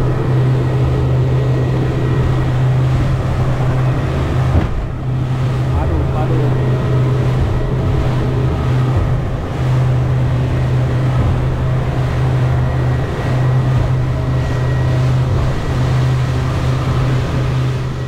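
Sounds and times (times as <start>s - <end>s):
boat engine humming: 0.0s - 18.0s
water and hull noise: 0.0s - 18.0s.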